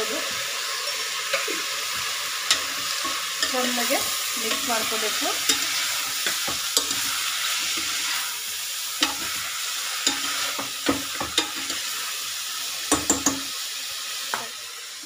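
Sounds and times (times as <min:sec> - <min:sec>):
mushrooms and onions sizzling: 0:00.0 - 0:15.0
steel spoon clinking on pot: 0:02.5 - 0:03.9, 0:04.5 - 0:07.2, 0:09.0 - 0:09.4, 0:10.0 - 0:11.9.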